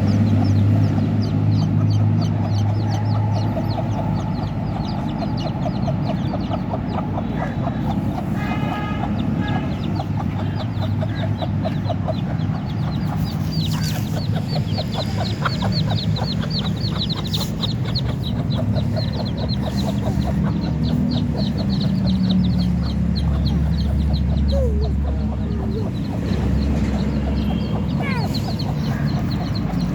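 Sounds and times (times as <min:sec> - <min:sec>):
chicks peeping: 0:00.0 - 0:29.9
hen clucking: 0:00.0 - 0:29.9.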